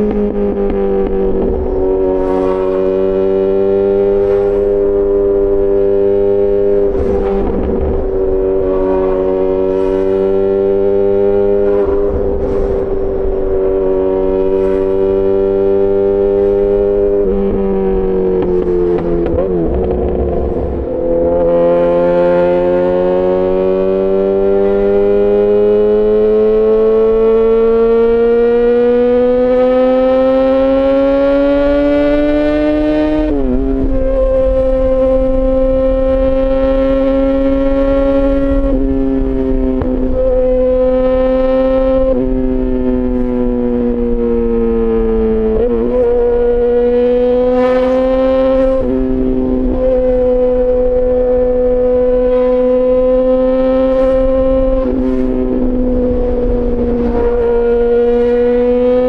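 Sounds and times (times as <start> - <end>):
motorcycle engine running: 0.0 - 26.2, 27.4 - 59.0
gear change: 0.0 - 59.0
bursts of rushing noise: 6.8 - 15.2.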